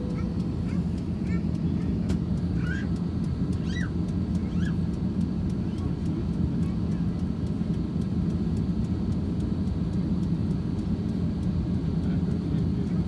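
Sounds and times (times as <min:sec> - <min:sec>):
airplane taxiing rumble: 0:00.0 - 0:13.0.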